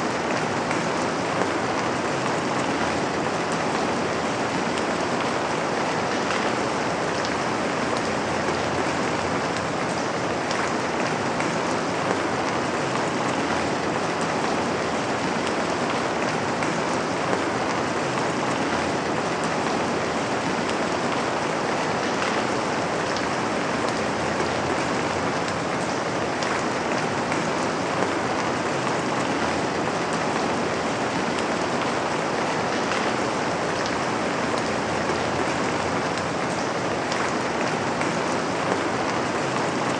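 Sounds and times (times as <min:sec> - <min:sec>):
rain on window pane: 0:00.1 - 0:39.9.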